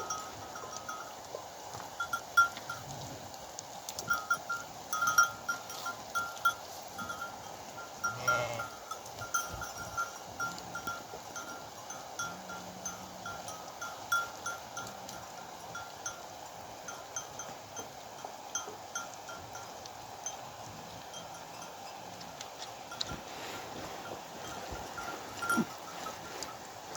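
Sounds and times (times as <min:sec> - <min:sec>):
sheep bells clinking: 0:00.0 - 0:03.0, 0:03.8 - 0:26.9
sheep bleating: 0:08.1 - 0:08.7.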